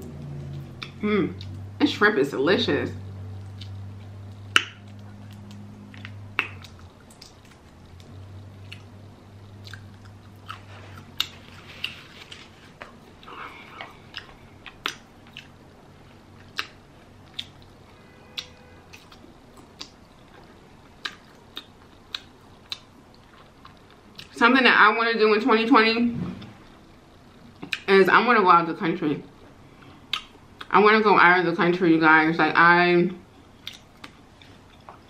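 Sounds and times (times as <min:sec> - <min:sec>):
chewing shrimp: 0:03.3 - 0:17.8, 0:18.4 - 0:24.4, 0:33.6 - 0:35.0
sharp mouth clicks and smacks: 0:03.4 - 0:08.9, 0:09.5 - 0:10.3, 0:13.8 - 0:15.5, 0:16.4 - 0:17.7, 0:18.4 - 0:20.0, 0:30.1 - 0:30.7, 0:33.6 - 0:34.2
paper napkin rustling: 0:10.6 - 0:12.8.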